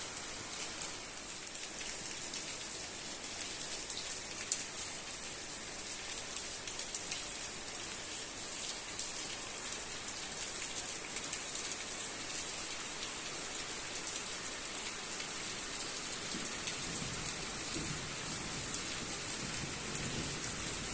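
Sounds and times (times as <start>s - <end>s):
raindrops ticking on hard surfaces: 0.1s - 20.9s
low rumble of thunder: 16.8s - 20.9s.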